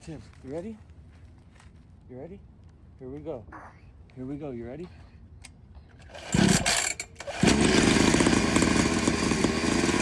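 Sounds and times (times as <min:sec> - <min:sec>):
dirt bike engine starting: 0:06.1 - 0:10.0.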